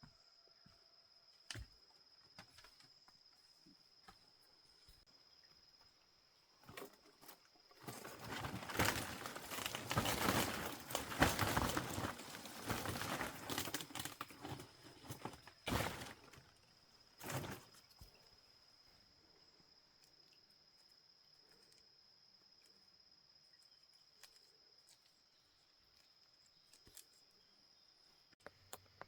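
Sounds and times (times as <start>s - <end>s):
rustling and crackling: 6.6s - 18.3s.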